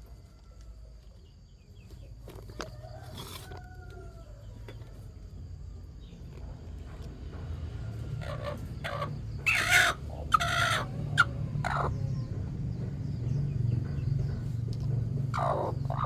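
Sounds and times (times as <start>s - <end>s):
chickens clucking and squawking: 6.5s - 16.0s.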